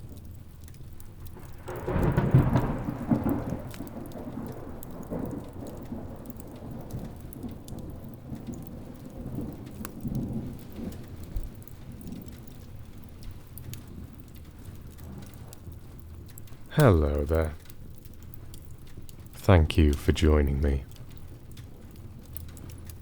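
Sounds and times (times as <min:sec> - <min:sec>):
steady rain: 0:00.0 - 0:23.0
wood fire crackling: 0:00.0 - 0:23.0
thunder rumbling: 0:01.4 - 0:18.5.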